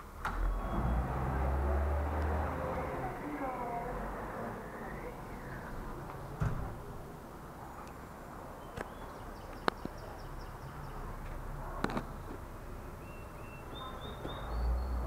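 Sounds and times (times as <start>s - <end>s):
small bird chirping: 12.2s - 15.0s.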